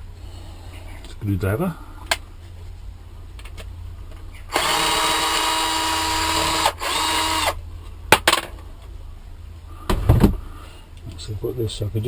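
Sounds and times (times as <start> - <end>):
electric screwdriver motor whine: 4.5 - 7.6.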